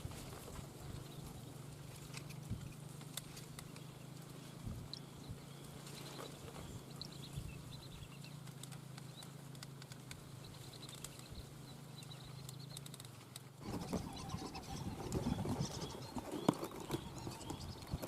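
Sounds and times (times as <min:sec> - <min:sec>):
small clicks: 0:02.0 - 0:04.0, 0:08.2 - 0:14.4
high bird whistles: 0:13.6 - 0:18.0.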